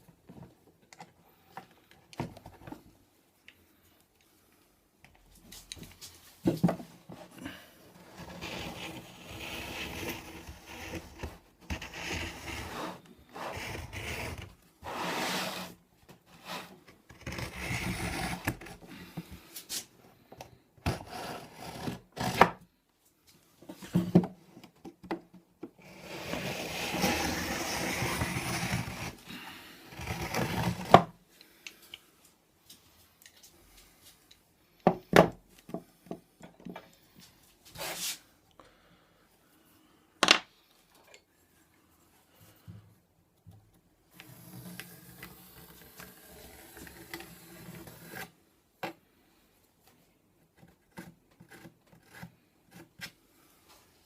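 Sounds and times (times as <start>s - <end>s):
hand tool scraping wood: 8.0s - 19.2s, 20.9s - 22.6s, 25.8s - 31.0s.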